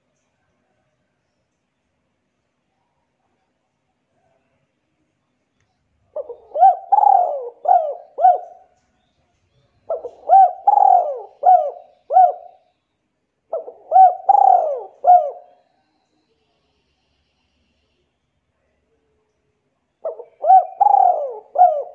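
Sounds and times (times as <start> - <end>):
bird calling: 6.1 - 8.7, 9.9 - 12.6, 13.5 - 15.6, 20.0 - 21.9.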